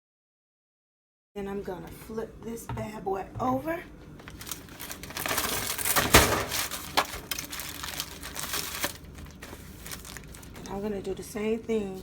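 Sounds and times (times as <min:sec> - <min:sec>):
wrapping crinkling and rustling: 0:04.2 - 0:11.1.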